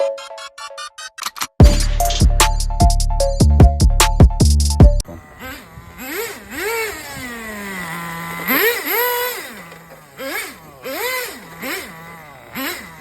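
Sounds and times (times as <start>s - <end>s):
small nitro engine revving: 5.0s - 13.0s.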